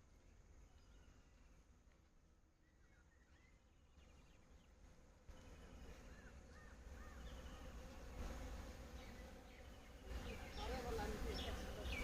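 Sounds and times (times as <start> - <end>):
bee buzzing: 4.7 - 12.0.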